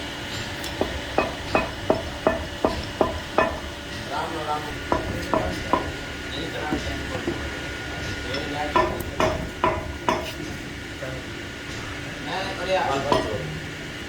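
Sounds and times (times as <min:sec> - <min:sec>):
sharp metallic taps: 0:00.3 - 0:10.6.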